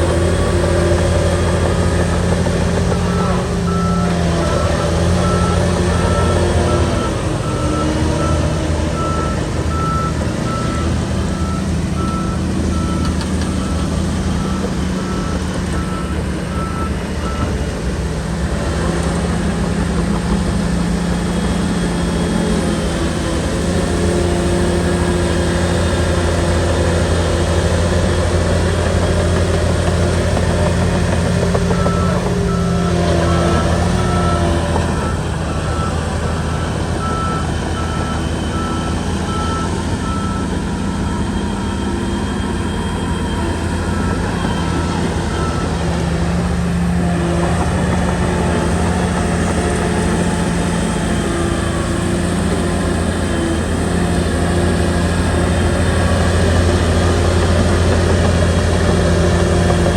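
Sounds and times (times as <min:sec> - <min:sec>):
bulldozer diesel engine running: 0:00.0 - 0:59.9
reverse alarm beeping: 0:31.7 - 0:46.7.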